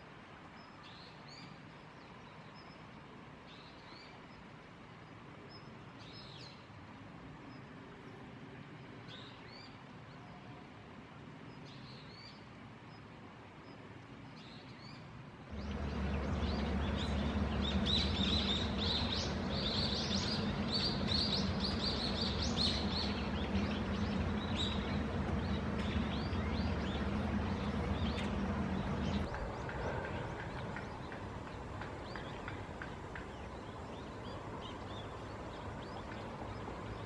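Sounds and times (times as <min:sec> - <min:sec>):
small birds chirping: 0:14.3 - 0:37.0
steady low hum: 0:15.4 - 0:37.0.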